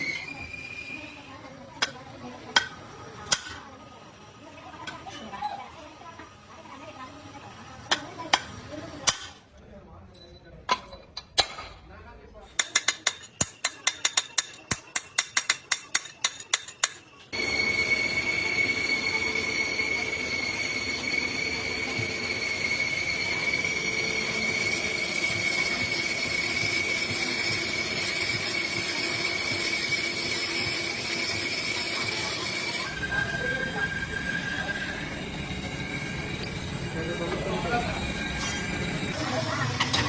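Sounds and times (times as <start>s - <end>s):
machine squealing over hiss: 0.0s - 1.3s, 17.2s - 40.0s.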